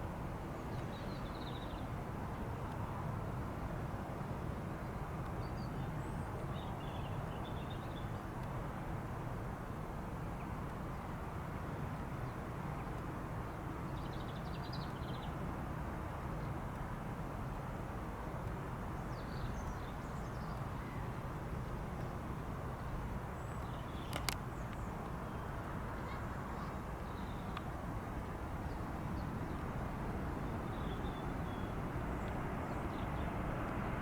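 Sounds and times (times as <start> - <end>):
low airport rumble: 25.5 - 34.0.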